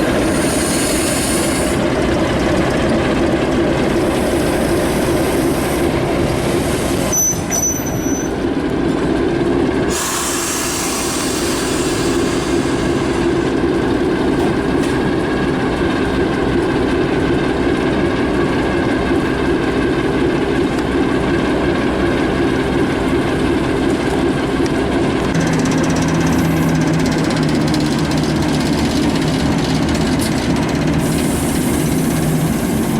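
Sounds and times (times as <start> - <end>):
high-pitched train squeal: 0.0 - 2.0, 3.9 - 8.5, 9.9 - 14.2, 25.4 - 29.3
train running on tracks: 0.0 - 32.9.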